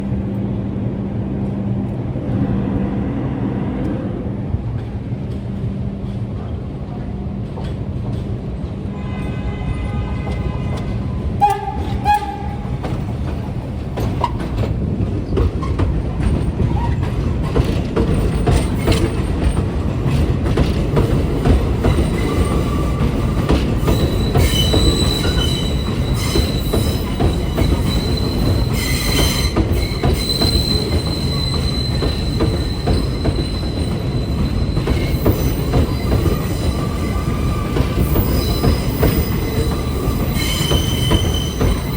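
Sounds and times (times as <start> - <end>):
subway train wheels rumbling: 0.0 - 41.9
high wheel squeal: 22.0 - 41.9.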